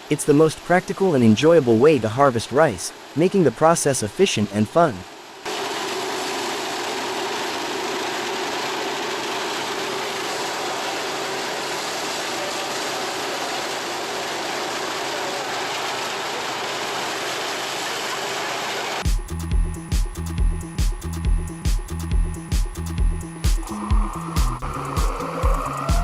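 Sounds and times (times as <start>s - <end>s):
combine harvester humming and rattling: 5.6s - 19.0s.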